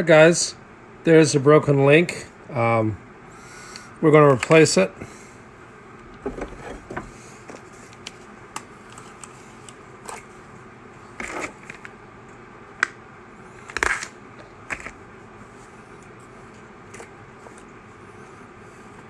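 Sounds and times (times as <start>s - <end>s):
parts clattering: 6.0s - 7.7s.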